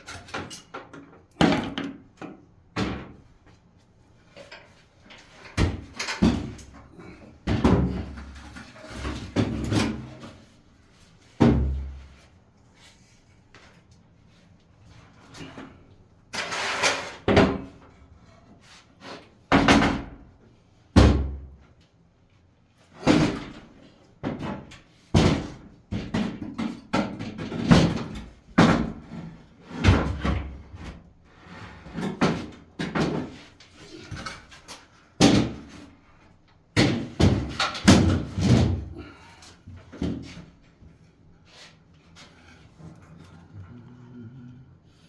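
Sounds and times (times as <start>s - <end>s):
knocks and bangs of handwork: 1.4s - 3.2s, 5.6s - 6.8s, 7.4s - 8.4s, 11.4s - 12.0s, 19.5s - 20.3s, 21.0s - 21.5s, 23.0s - 30.9s, 35.2s - 35.9s, 36.7s - 39.1s.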